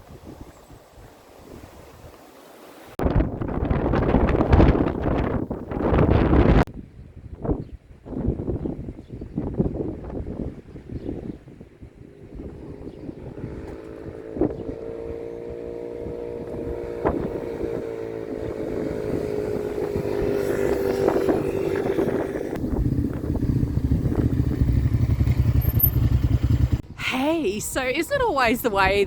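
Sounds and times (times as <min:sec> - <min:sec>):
small petrol engine droning: 0:11.5 - 0:26.8.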